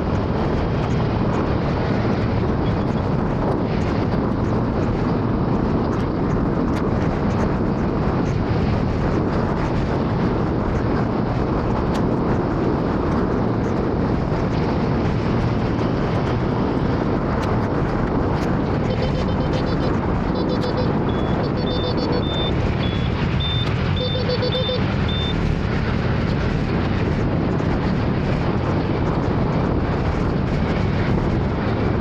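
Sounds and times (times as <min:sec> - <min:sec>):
road noise: 0:00.0 - 0:32.0
wind rushing: 0:00.0 - 0:32.0
scooter engine running: 0:17.5 - 0:26.5.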